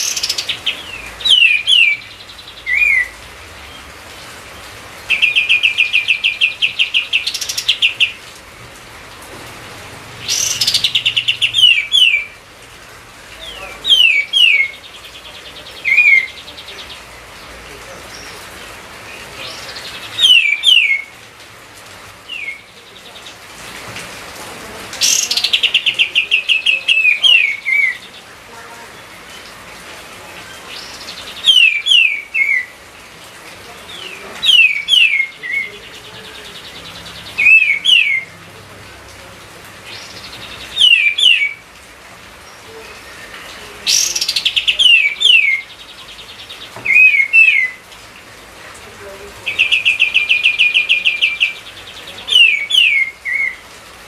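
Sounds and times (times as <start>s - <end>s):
songbird singing whistled notes: 0.0s - 3.9s, 5.1s - 8.2s, 10.2s - 12.4s, 13.4s - 17.1s, 19.1s - 21.2s, 22.3s - 23.4s, 25.0s - 28.2s, 30.5s - 32.7s, 33.9s - 38.4s, 39.9s - 41.6s, 42.4s - 47.8s, 49.5s - 53.6s.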